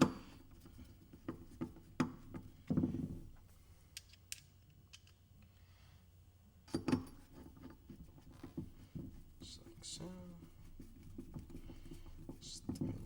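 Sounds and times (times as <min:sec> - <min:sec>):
metal screws clicking and knocking: 0:03.9 - 0:05.2.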